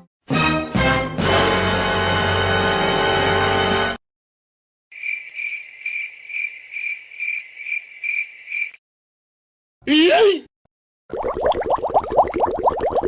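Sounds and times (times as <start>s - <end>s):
crickets chirping: 4.9s - 8.8s.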